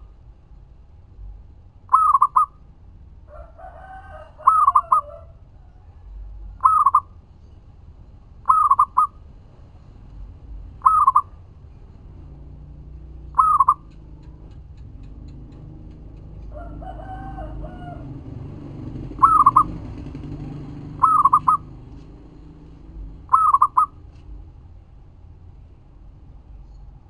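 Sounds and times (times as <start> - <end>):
dove cooing: 1.9 - 2.6, 3.3 - 5.6, 6.6 - 7.1, 8.4 - 9.2, 10.8 - 11.4, 13.2 - 14.6, 15.2 - 24.2
lower longer bird call: 1.9 - 2.6, 4.2 - 5.3, 6.6 - 7.1, 8.4 - 9.2, 10.8 - 11.4, 13.3 - 13.9, 19.2 - 21.8, 23.3 - 24.0.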